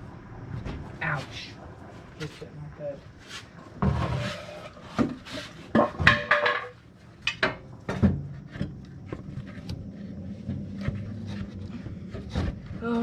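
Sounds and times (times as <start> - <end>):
metal tools clanking and knocking: 5.8 - 7.6.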